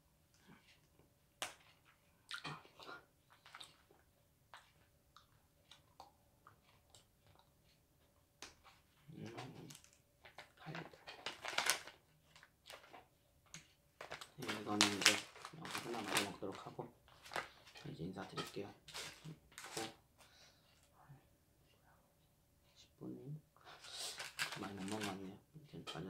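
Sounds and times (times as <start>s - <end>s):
biting and chewing plastic straw: 8.5s - 17.8s, 23.8s - 25.2s.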